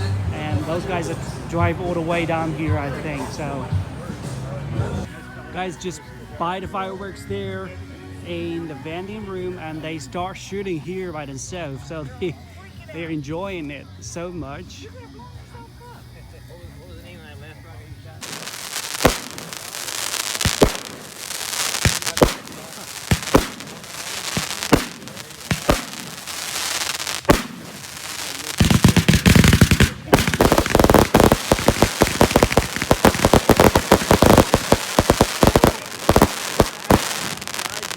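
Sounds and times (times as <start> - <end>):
fireworks bangs and crackles: 18.2 - 37.9
fireworks hissing: 18.2 - 37.9.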